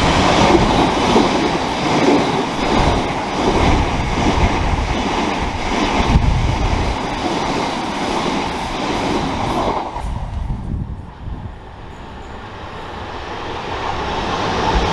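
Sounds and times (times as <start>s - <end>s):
train wheel and rail noise: 0.0s - 14.9s.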